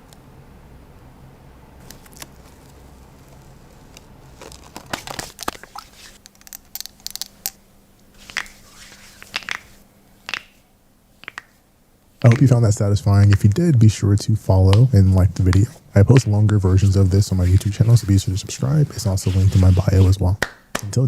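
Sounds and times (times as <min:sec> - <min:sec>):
towel rustling on hands: 0:04.4 - 0:06.2, 0:08.1 - 0:09.8, 0:12.2 - 0:20.3.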